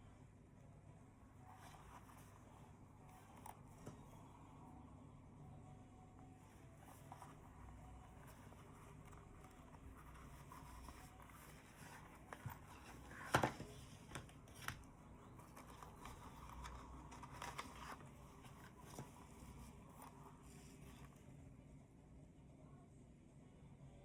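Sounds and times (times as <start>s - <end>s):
packaging clicks and rustles: 6.8s - 21.2s.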